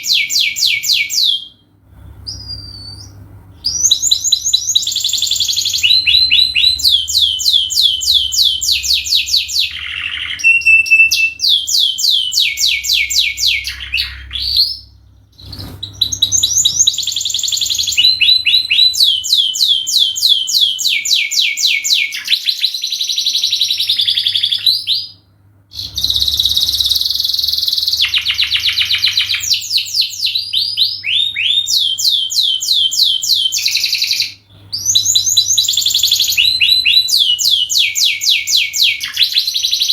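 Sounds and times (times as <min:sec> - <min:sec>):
canary singing: 0:00.0 - 0:01.6, 0:02.2 - 0:39.9
faint low hum: 0:00.0 - 0:39.9.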